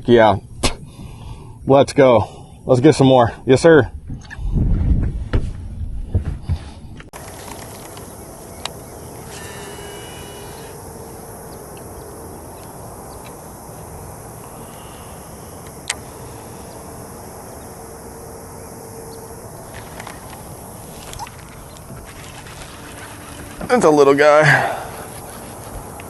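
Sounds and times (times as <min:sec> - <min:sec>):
faint steady hum: 0:00.0 - 0:04.8, 0:05.7 - 0:26.0
sharp clicks: 0:15.6 - 0:16.0.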